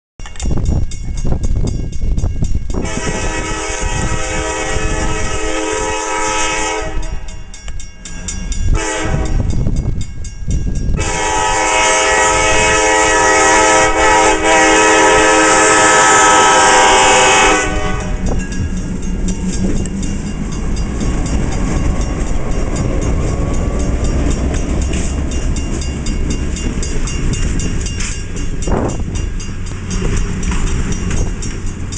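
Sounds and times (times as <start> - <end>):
diesel locomotive engines rumbling: 0.2 - 31.9
multi-tone train air horn: 2.8 - 7.3, 8.7 - 9.6, 11.0 - 18.4.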